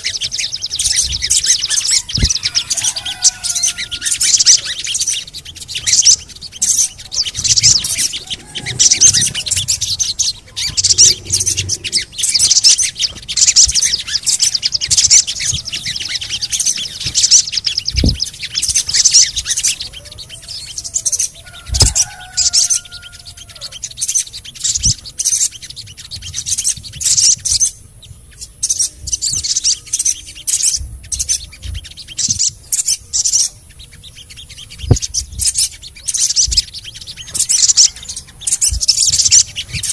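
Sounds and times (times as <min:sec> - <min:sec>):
low gliding whistles: 0:00.0 - 0:27.8
bird chirping and twittering: 0:00.0 - 0:39.9
soft low thumps: 0:16.8 - 0:18.4.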